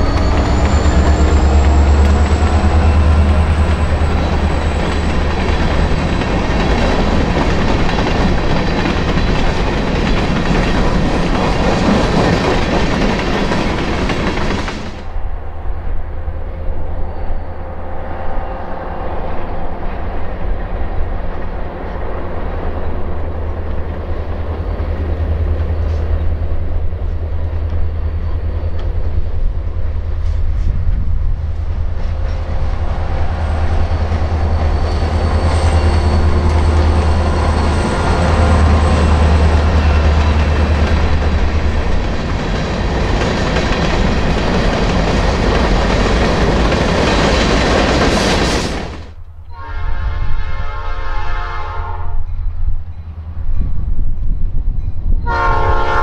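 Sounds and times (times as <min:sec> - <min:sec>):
train wheels clattering: 0:00.0 - 0:15.0, 0:30.1 - 0:49.2
diesel locomotive engine drone: 0:00.0 - 0:56.0.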